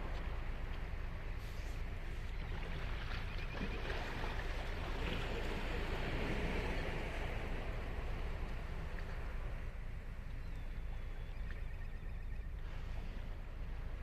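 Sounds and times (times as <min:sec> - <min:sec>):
ocean surf on beach: 0:03.9 - 0:09.8.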